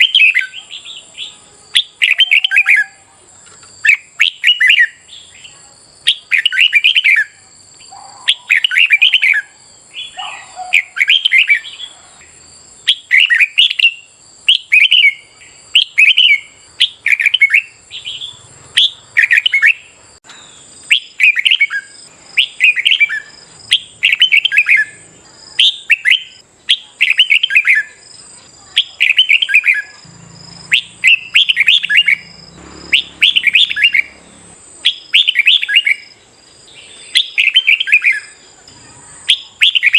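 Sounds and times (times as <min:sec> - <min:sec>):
bird warbling: 0:00.0 - 0:03.1, 0:30.6 - 0:36.2, 0:36.8 - 0:39.9.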